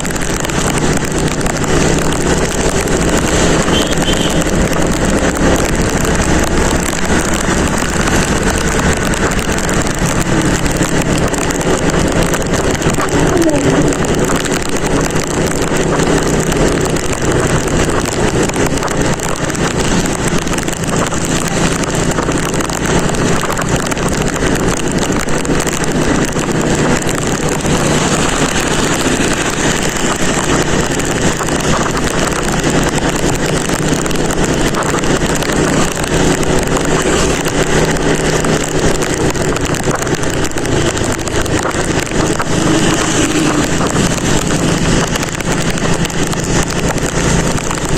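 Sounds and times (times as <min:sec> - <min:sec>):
motorcycle engine hum: 0:00.0 - 0:47.9
wind noise on microphone: 0:00.0 - 0:47.9.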